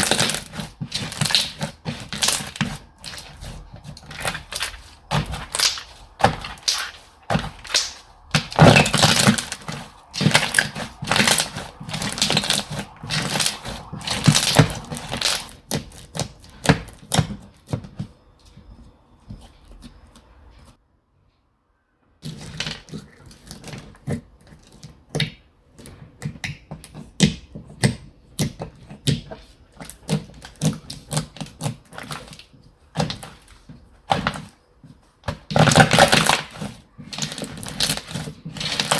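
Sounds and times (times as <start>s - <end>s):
slime squished by hand: 0.0s - 17.4s.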